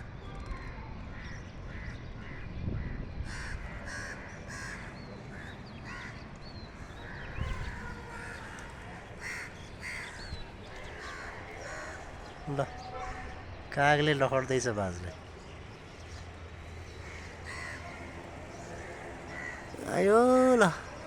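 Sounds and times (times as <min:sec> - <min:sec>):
low background noise: 0:00.0 - 0:21.0
crows cawing: 0:03.2 - 0:06.2, 0:06.9 - 0:13.5, 0:16.6 - 0:21.0.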